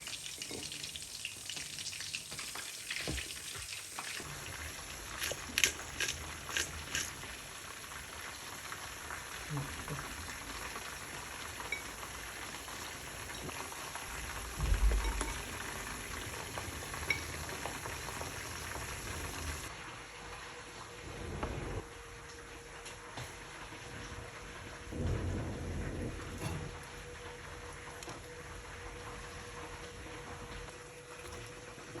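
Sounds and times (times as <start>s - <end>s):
food sizzling in hot oil: 0.0s - 20.0s
low thumps: 14.5s - 15.8s.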